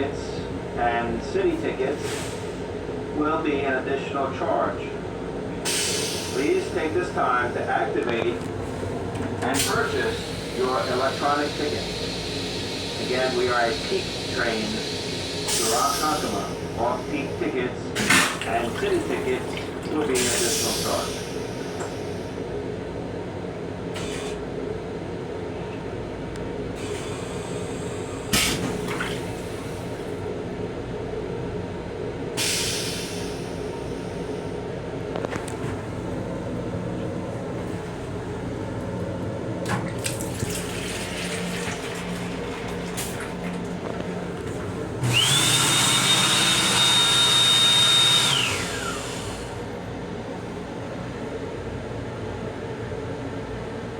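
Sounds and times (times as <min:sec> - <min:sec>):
railcar rumble and hum: 0:00.0 - 0:53.9
steady low rumble: 0:33.4 - 0:45.4
electric motor hiss and whine: 0:45.0 - 0:49.6.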